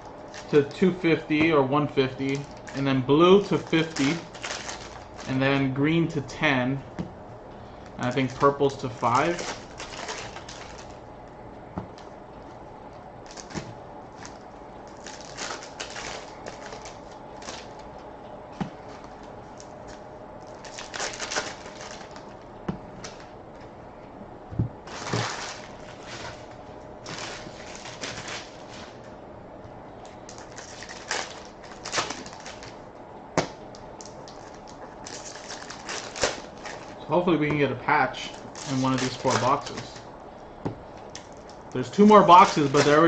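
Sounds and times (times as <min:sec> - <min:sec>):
card packs rustling and crinkling: 0:00.2 - 0:06.0, 0:07.8 - 0:11.0, 0:13.3 - 0:18.0, 0:18.6 - 0:22.4, 0:24.8 - 0:29.1, 0:30.2 - 0:32.8, 0:34.0 - 0:40.0, 0:41.0 - 0:43.0.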